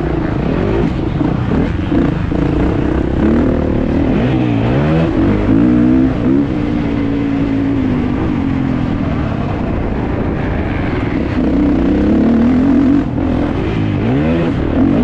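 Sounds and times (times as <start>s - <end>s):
wind noise: 0.0s - 15.0s
motocross engine revving hard: 11.3s - 15.0s.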